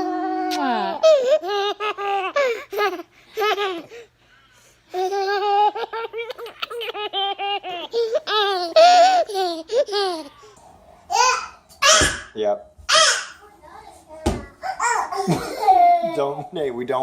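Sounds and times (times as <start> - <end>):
baby laughing: 0.0 - 4.0, 4.9 - 12.3, 14.6 - 16.4.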